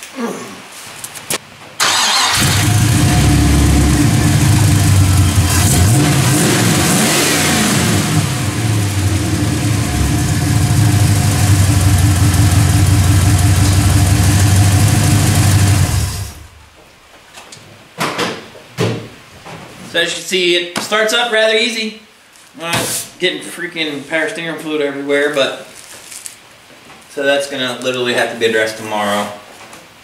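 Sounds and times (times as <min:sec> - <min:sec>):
car engine idling: 0:01.8 - 0:16.6
car engine starting and revving: 0:01.8 - 0:16.6.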